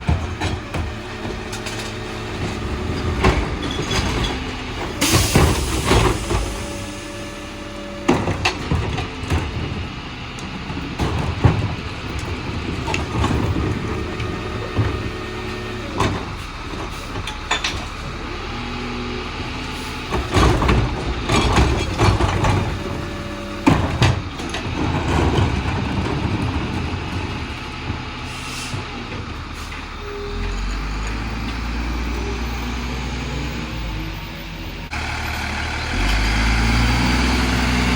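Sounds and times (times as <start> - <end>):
bangs and clattering: 0.0 - 7.2
garbage truck engine running: 0.0 - 37.9.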